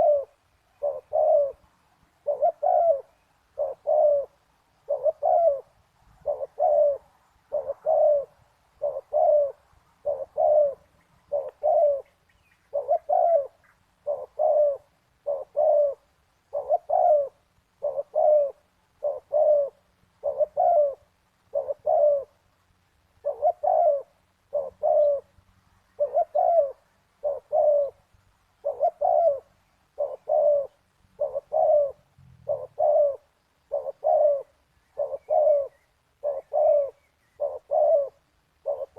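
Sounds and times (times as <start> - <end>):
dove cooing: 0.0 - 22.5, 23.2 - 38.9.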